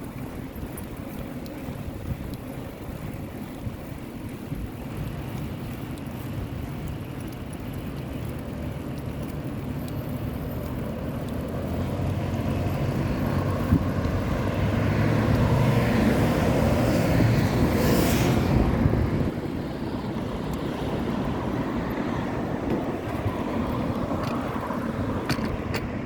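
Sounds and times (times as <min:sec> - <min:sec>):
bike riding noise: 0:00.0 - 0:26.0
motor vehicle passing close: 0:11.3 - 0:26.0.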